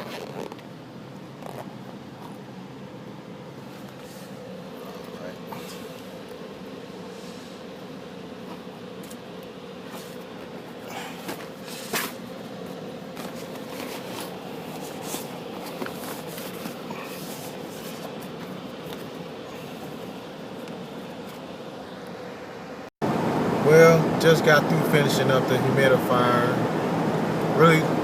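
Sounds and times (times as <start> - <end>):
handling clicks and rustles: 0.0 - 7.0, 7.6 - 22.2
steady mechanical hum: 0.0 - 28.0.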